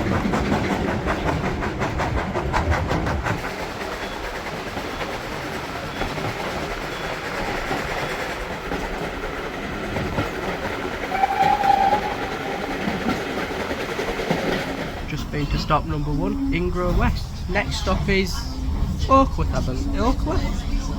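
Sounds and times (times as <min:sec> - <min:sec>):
train carriage clattering on rails: 0:00.0 - 0:20.9
steam whistle: 0:11.1 - 0:13.0.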